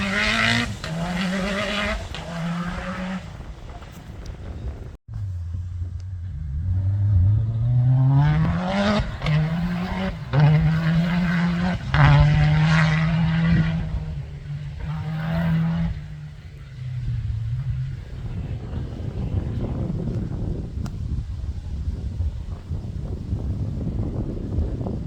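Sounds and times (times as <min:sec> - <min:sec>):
racing car engine revving: 0:00.0 - 0:04.2, 0:05.2 - 0:20.9.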